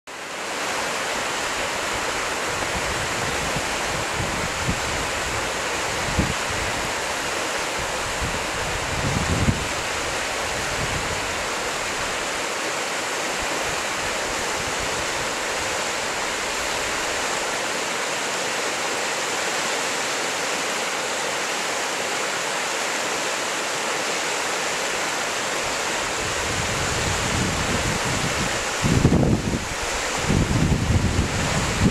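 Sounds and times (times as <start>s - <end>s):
river water rushing: 0.1s - 31.9s
wind buffeting microphone: 2.0s - 7.0s, 7.8s - 12.1s, 26.1s - 31.9s.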